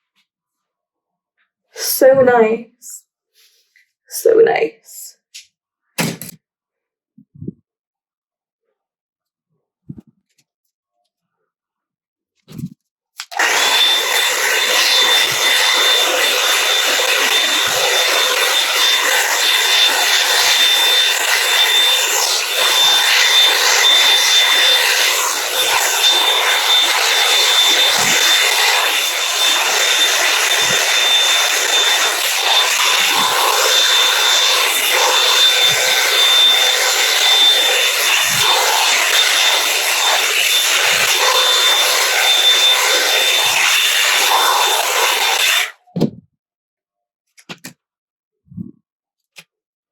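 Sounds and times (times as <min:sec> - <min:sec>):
hot-air brush blowing: 0:13.2 - 0:45.8.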